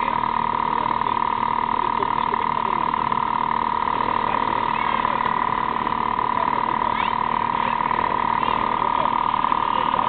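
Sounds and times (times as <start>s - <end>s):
faint voices: 0.0s - 10.0s
small motorcycle engine running: 0.0s - 10.0s.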